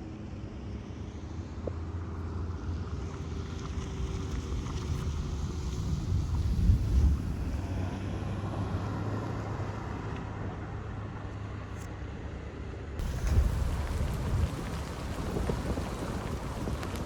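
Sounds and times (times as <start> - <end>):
wind buffeting microphone: 5.1 - 7.8, 13.0 - 17.0
car driving rumble: 13.0 - 17.0.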